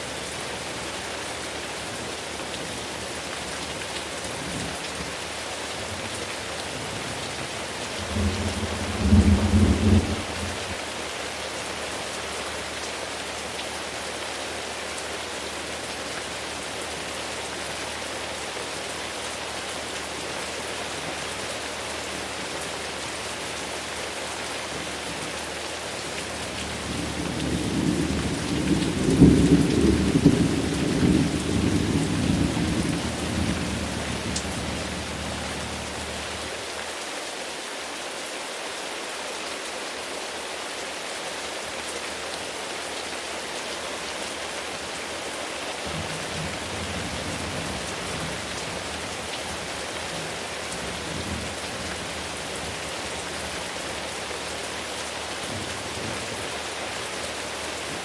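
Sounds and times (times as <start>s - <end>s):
steady rain: 0.0s - 58.0s
thunder rumbling: 8.0s - 10.8s, 26.6s - 36.5s.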